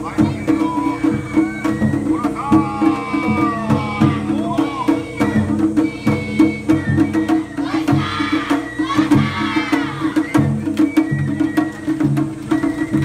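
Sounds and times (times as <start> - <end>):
taiko drumming: 0.0 - 13.0.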